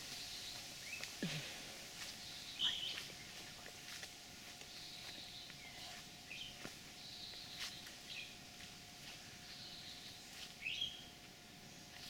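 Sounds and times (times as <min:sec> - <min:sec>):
quiet rural background noise: 0:00.0 - 0:12.0
faint bird chirps: 0:02.0 - 0:03.6.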